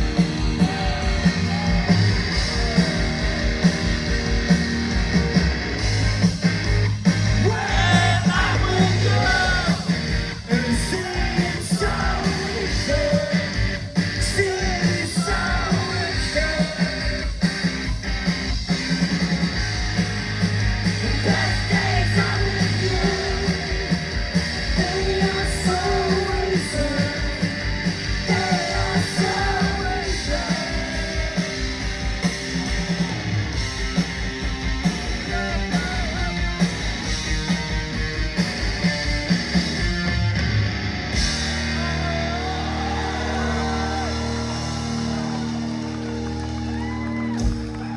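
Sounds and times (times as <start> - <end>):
bass: 0.0 - 47.9
drums: 0.0 - 47.9
electric guitar: 0.0 - 47.9
voices singing: 7.4 - 17.4, 20.8 - 32.2, 41.4 - 45.7.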